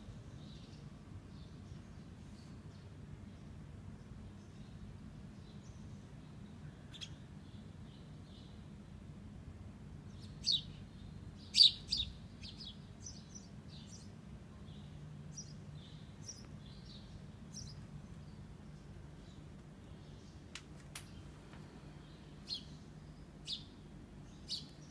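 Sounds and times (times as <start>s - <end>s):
small bird chirping: 4.2s - 8.6s, 10.1s - 24.9s.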